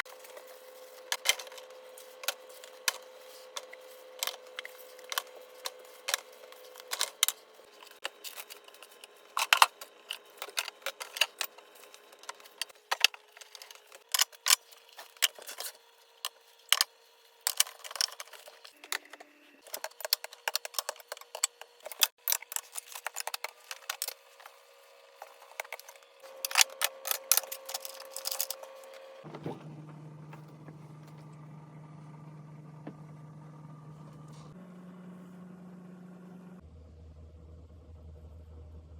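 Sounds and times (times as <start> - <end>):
household objects clinking and rattling: 17.4 - 24.6, 25.2 - 31.4.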